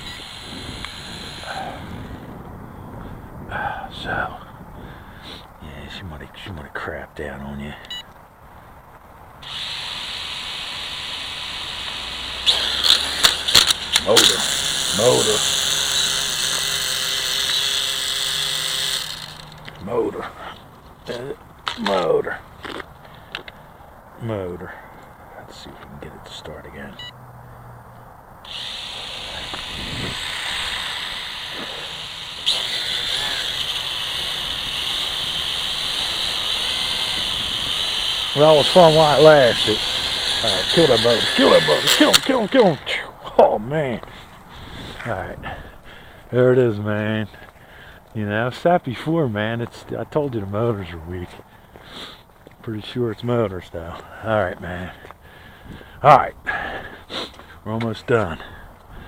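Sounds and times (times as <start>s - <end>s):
drone motors whining: 0.0s - 2.6s, 9.4s - 19.8s, 28.4s - 42.9s
sharp clicks: 11.8s - 19.8s.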